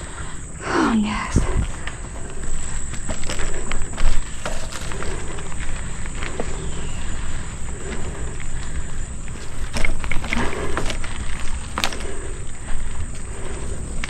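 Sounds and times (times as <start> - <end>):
high insect drone: 0.0 - 14.0
wind on microphone: 0.0 - 14.0
bike rolling over dirt trail: 1.4 - 14.0
bike knocks and rattles: 1.5 - 14.0.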